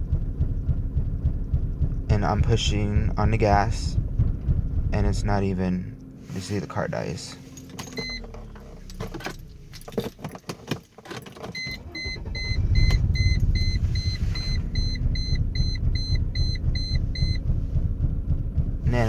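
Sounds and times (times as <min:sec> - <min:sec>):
car engine idling roughly: 0:00.0 - 0:10.2, 0:11.7 - 0:19.0
dashboard warning chime beeping: 0:06.0 - 0:10.0, 0:11.6 - 0:19.0
key and ignition clicks: 0:07.5 - 0:17.8.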